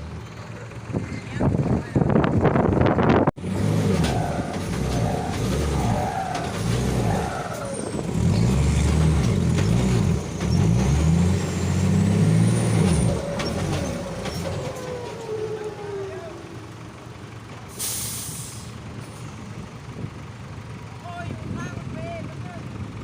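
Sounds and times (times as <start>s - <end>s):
diesel truck engine revving: 0.0s - 22.0s.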